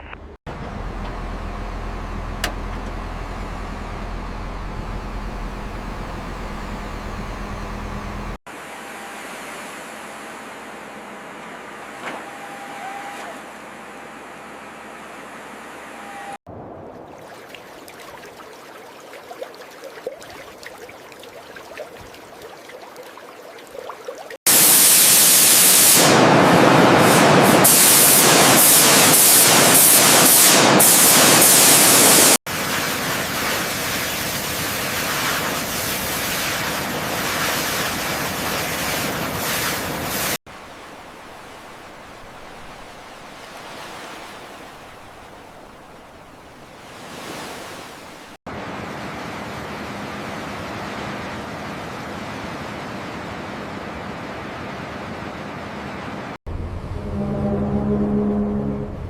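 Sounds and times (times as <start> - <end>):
faint hum: 0.0 - 8.4, 40.5 - 47.0.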